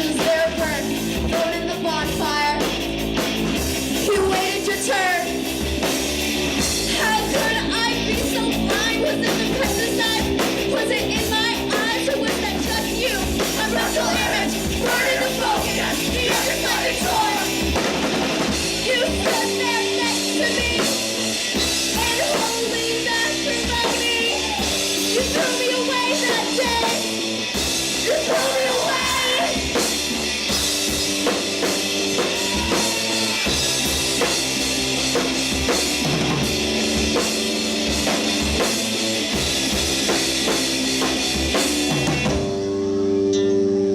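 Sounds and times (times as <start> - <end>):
person singing: 0.0 - 2.7, 4.0 - 5.3, 6.9 - 17.8, 18.8 - 21.1, 21.9 - 27.2, 28.0 - 29.7
bass guitar: 0.0 - 43.9
drum kit: 0.0 - 43.9
guitars: 0.0 - 43.9.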